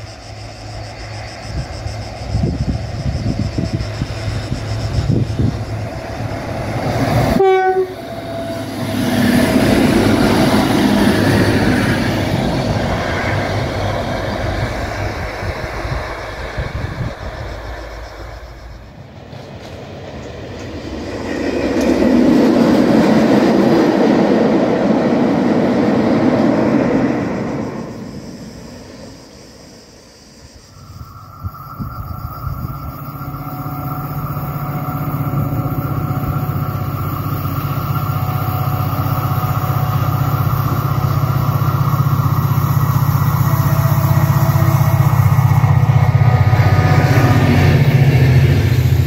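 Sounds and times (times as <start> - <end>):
train rumbling past: 0.0 - 49.0
train horn blast: 6.9 - 11.0, 32.6 - 48.7.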